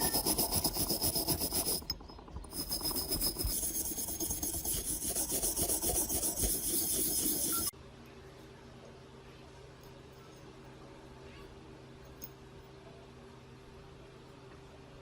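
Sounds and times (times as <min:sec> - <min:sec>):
hand filing or sanding scraping: 0:00.0 - 0:01.8, 0:02.5 - 0:07.7.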